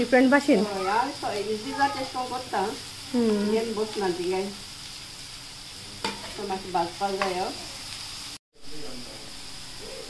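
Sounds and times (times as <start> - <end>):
woman talking: 0.0 - 4.6
onions sizzling in hot oil: 0.0 - 10.0.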